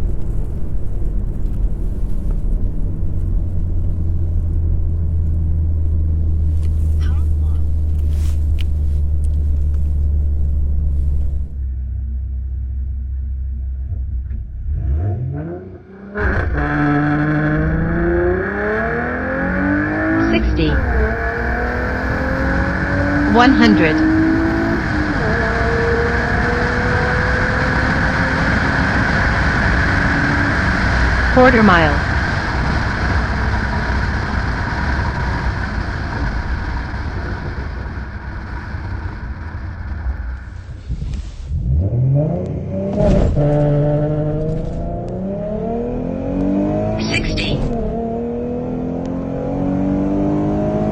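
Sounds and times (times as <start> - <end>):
wind and road noise: 0.0 - 11.8, 14.1 - 50.9
low engine rumble: 0.0 - 14.8, 20.0 - 25.9
car engine idling and revving: 0.0 - 50.9
car accelerating hard: 14.3 - 31.4, 32.0 - 50.9.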